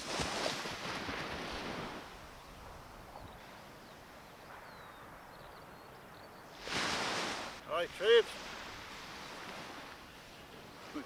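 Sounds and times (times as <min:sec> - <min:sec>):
wind and surf: 0:00.0 - 0:11.0
faint bird chirps: 0:02.4 - 0:06.5.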